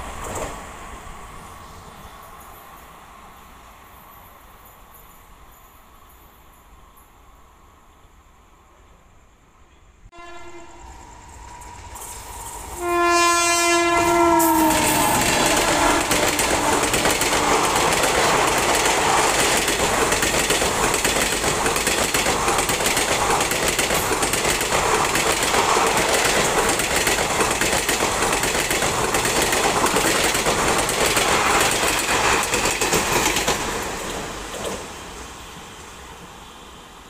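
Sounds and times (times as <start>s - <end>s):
train rumble and hiss of wheels: 0.0s - 37.0s
clickety-clack of wheels: 14.8s - 34.9s.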